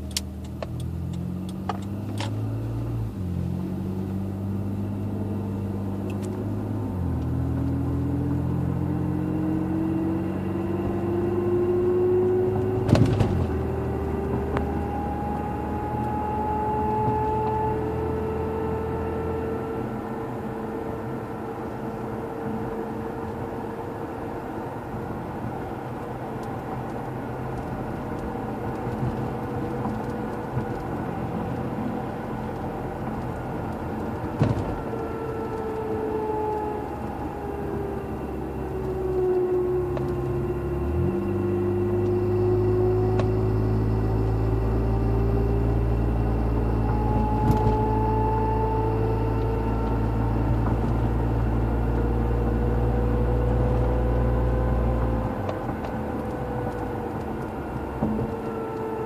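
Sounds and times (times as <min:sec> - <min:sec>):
rear differential whine: 0:00.0 - 0:59.0
tyre and road rumble: 0:26.7 - 0:36.2.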